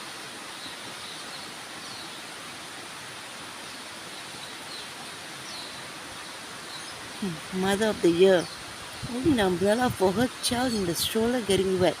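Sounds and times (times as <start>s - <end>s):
heavy rain falling: 2.5s - 12.0s.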